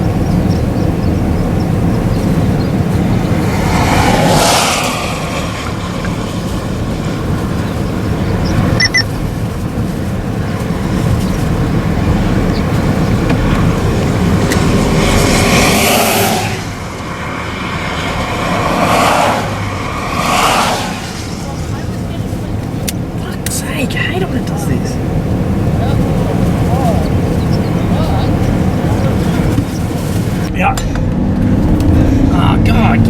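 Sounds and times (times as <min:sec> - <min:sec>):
road rumble and tyre hiss: 0:00.0 - 0:33.0
vehicles whooshing past: 0:00.0 - 0:33.0
short electronic beep: 0:08.8 - 0:09.1.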